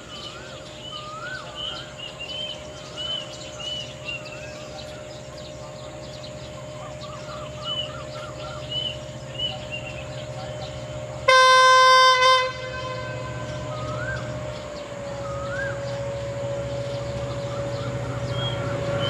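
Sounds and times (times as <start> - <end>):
bird whistles and chirps: 0.0 - 5.1, 6.2 - 10.1, 13.5 - 14.5, 15.1 - 16.2, 16.9 - 19.0
steady low hum: 0.0 - 19.0.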